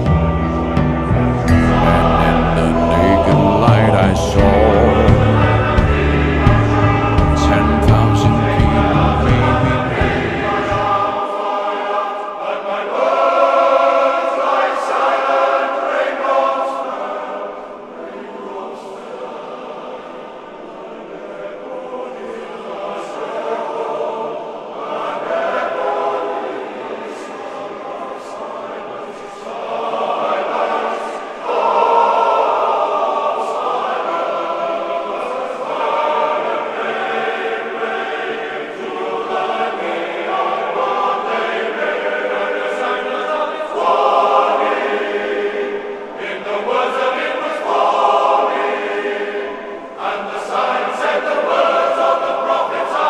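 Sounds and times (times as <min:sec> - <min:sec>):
choir singing: 0:00.0 - 0:53.0.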